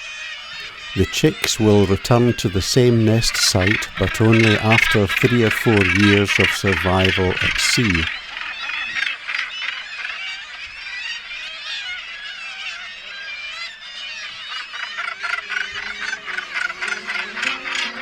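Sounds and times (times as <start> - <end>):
seabirds giving harsh calls: 0.0 - 18.0
soft music with held notes: 15.0 - 18.0.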